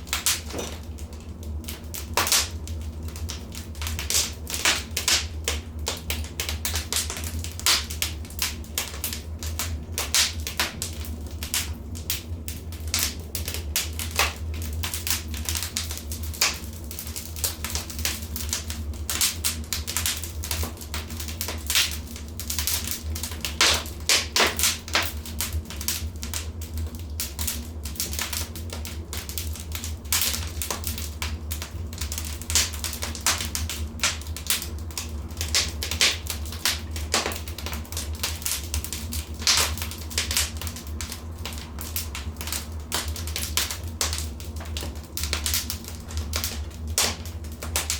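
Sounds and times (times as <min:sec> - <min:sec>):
fire crackling and popping: 0:00.0 - 0:47.9
low rumble of fire: 0:00.0 - 0:47.9.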